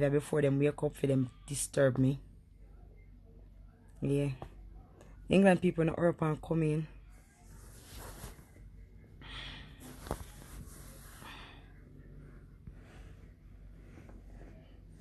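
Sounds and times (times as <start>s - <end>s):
person breathing: 9.2s - 14.9s.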